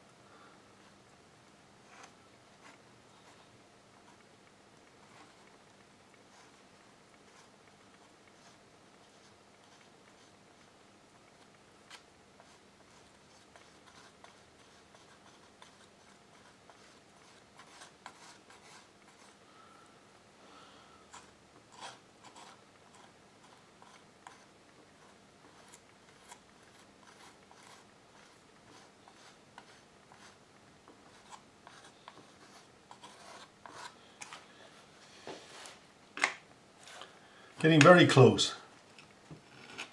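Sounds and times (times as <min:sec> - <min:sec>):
metal spatula scratching paper: 0:21.2 - 0:24.5, 0:31.1 - 0:34.0.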